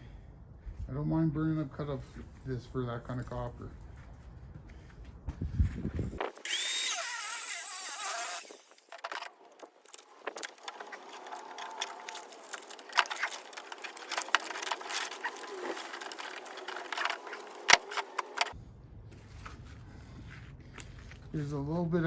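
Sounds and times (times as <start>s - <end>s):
angle grinder cutting metal: 6.4s - 9.1s, 10.2s - 18.6s.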